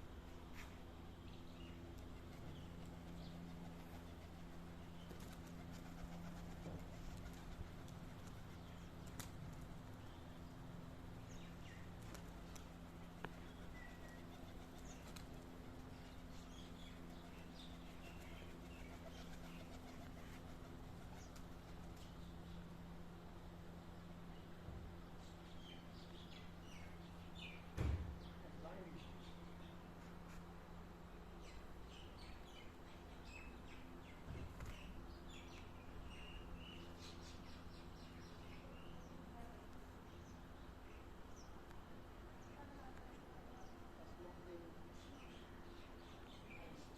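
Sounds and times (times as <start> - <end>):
steady low hum: 0.0 - 46.9
small birds chirping: 0.2 - 46.9
faint bird chirps: 13.3 - 15.2.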